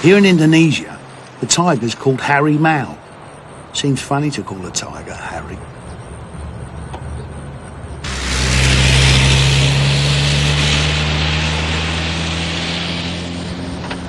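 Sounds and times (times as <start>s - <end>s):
engine running with rushing noise: 5.5s - 14.0s.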